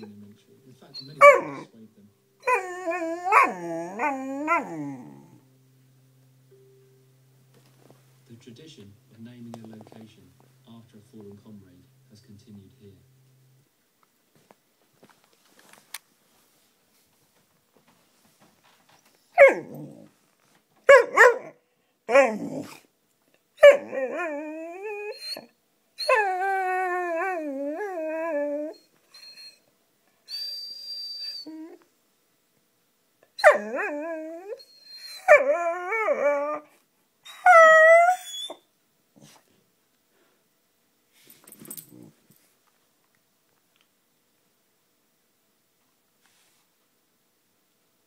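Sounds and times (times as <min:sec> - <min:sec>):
dog howling: 0:01.0 - 0:01.6, 0:02.4 - 0:05.4, 0:23.6 - 0:28.8, 0:33.4 - 0:36.7, 0:37.3 - 0:38.6
dog barking: 0:01.2 - 0:01.6, 0:20.9 - 0:21.6.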